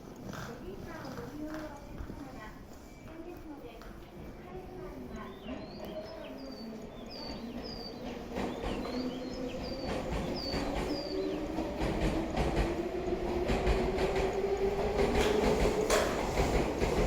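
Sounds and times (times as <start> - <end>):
train wheels clattering over rail joints: 13.5 - 17.0.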